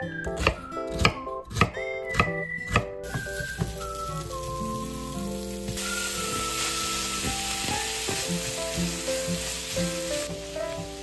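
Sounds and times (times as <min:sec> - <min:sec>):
food sizzling in a frying pan: 0:03.0 - 0:11.0.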